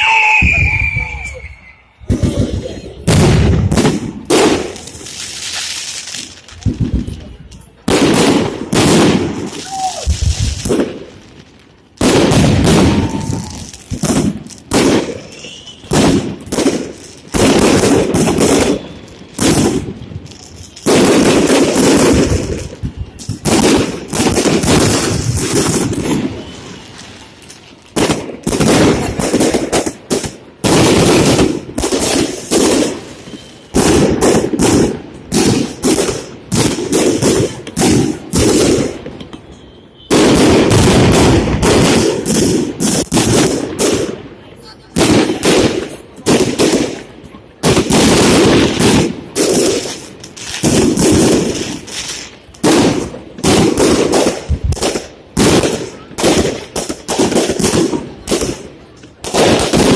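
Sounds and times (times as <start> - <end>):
fireworks bangs: 0.0 - 59.9.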